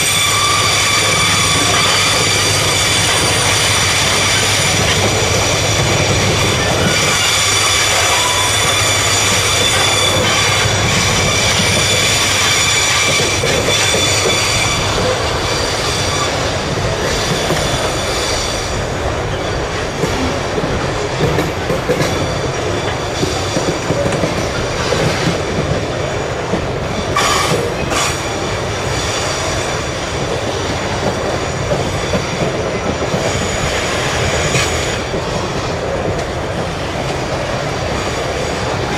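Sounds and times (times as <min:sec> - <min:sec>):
train wheels squealing: 0:00.0 - 0:20.4, 0:21.8 - 0:26.2, 0:26.9 - 0:35.7
freight train rumbling on rails: 0:00.0 - 0:38.9.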